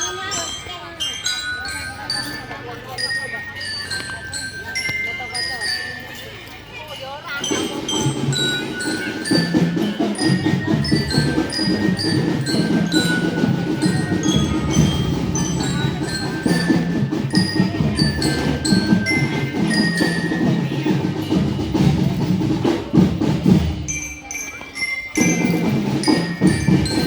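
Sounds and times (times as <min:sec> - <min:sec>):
bell lyre melody: 0:00.0 - 0:27.0
marching drums beat: 0:07.4 - 0:24.1, 0:25.2 - 0:27.0.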